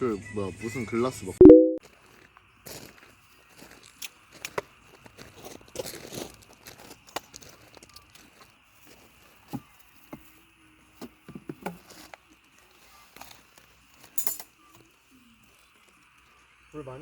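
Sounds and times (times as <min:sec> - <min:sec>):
insects trilling: 0:02.0 - 0:17.0
tableware and utensils clinking: 0:14.1 - 0:14.6.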